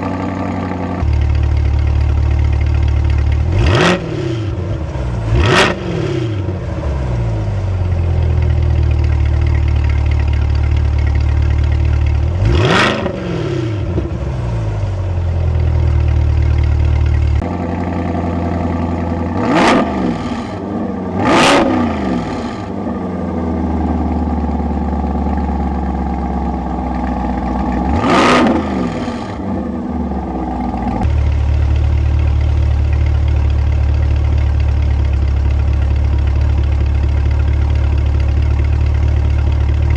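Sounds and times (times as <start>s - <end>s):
car engine idling and revving: 0.0s - 39.9s.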